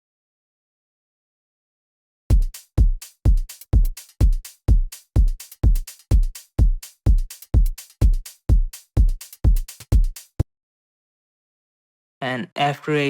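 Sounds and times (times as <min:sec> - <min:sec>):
house drum loop: 0:02.3 - 0:10.4.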